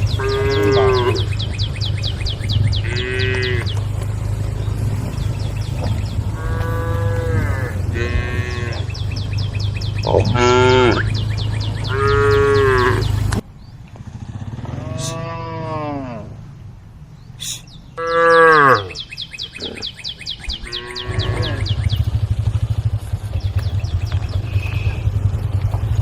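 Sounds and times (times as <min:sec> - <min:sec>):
cattle mooing: 0:00.0 - 0:01.5, 0:02.6 - 0:04.0, 0:05.7 - 0:09.3, 0:10.0 - 0:13.3, 0:14.6 - 0:16.4, 0:18.0 - 0:19.0, 0:20.6 - 0:21.8.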